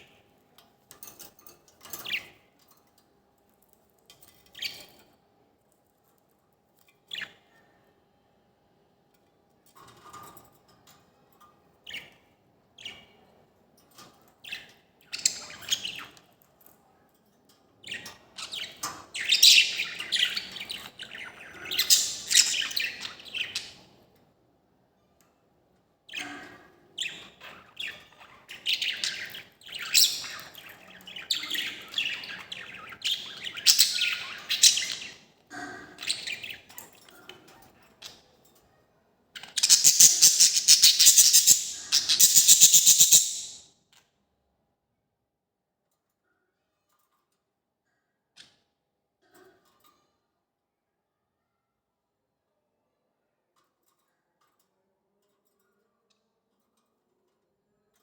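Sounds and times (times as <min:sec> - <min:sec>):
bird chirping: 0:17.8 - 0:23.8, 0:27.0 - 0:35.2, 0:39.4 - 0:43.6.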